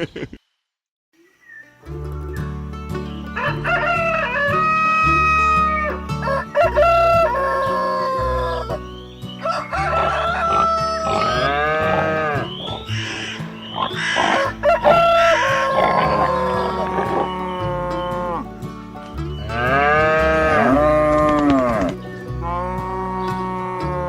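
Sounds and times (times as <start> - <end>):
background music with bass: 1.7 - 24.0
rooster crowing: 3.4 - 8.8, 9.4 - 13.1, 13.9 - 17.7.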